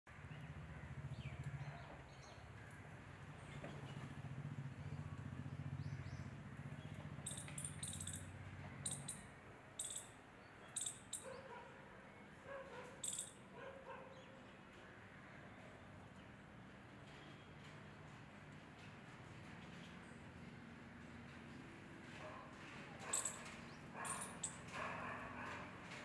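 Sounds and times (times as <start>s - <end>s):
small birds chirping: 4.7s - 11.5s, 13.0s - 13.3s, 23.1s - 24.6s.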